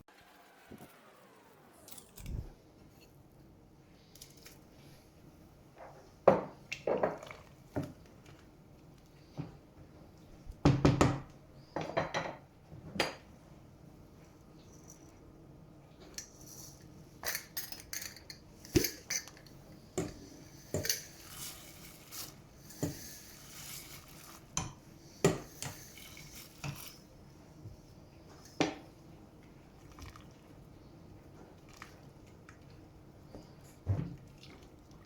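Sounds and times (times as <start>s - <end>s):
dishes and utensils clinking: 16.0s - 23.2s.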